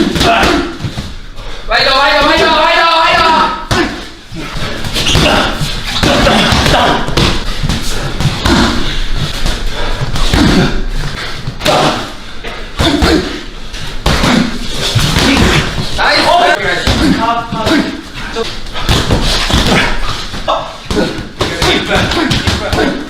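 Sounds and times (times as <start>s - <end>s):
strikes and bodies thudding: 3.7s - 12.1s, 12.7s - 18.0s, 18.6s - 23.0s.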